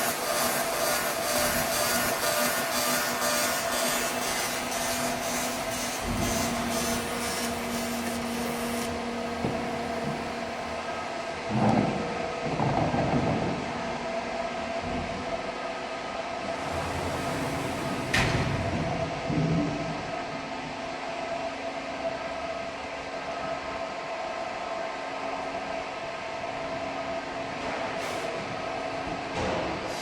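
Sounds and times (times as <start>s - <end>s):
held whining tones: 0.0s - 11.5s
welding machine humming: 0.0s - 12.7s, 16.4s - 19.1s
low motor tone: 16.4s - 20.4s.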